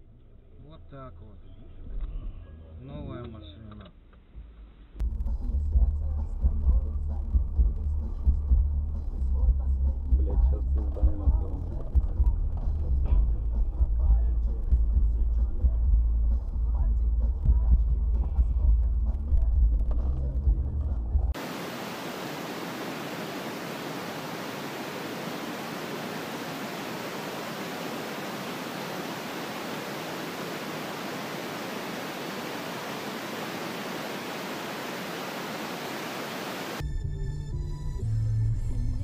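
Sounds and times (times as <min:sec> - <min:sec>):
steady recording hiss: 0:21.4 - 0:36.8.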